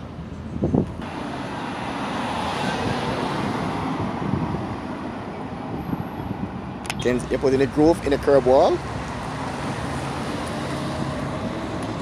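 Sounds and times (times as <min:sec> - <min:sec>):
vehicle passing by: 0:08.0 - 0:12.0.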